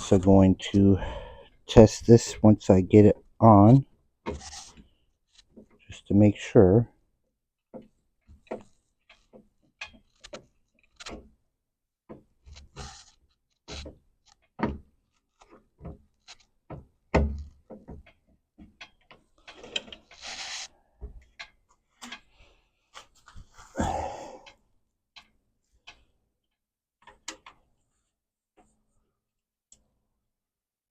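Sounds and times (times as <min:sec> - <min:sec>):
clicks and knocks of parts handled: 0:12.1 - 0:22.3, 0:27.0 - 0:27.6
scraping rub: 0:19.6 - 0:20.7.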